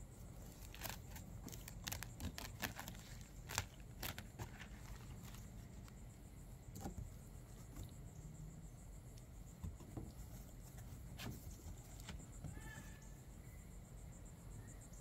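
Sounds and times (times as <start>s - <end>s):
handling clicks and rustles: 0.3s - 6.0s.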